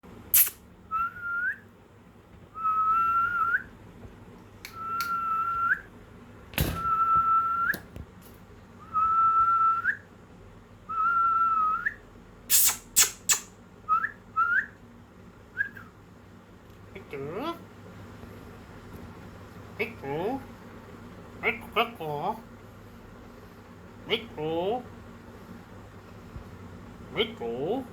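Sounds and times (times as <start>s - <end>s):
parrot chirps: 0.3s - 0.6s, 12.5s - 13.6s
parrot whistling: 10.9s - 14.7s.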